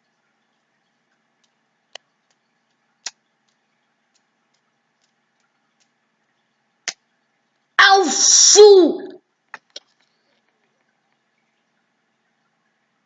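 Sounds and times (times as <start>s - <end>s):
faint irregular ticking: 0.0s - 7.8s.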